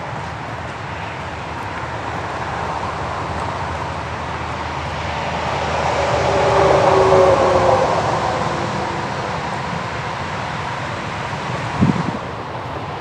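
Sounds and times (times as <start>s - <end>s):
outdoor background noise: 0.0s - 13.0s
vehicle passing by: 2.0s - 12.2s.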